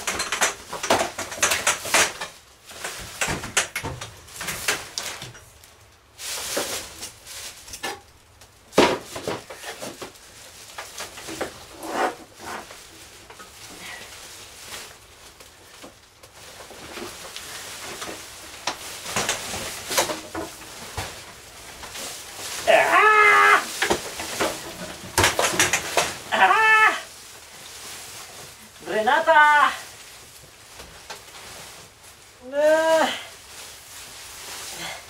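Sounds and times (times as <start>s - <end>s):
hard objects knocking and clattering: 0.0s - 5.4s, 17.9s - 21.3s, 23.7s - 26.3s.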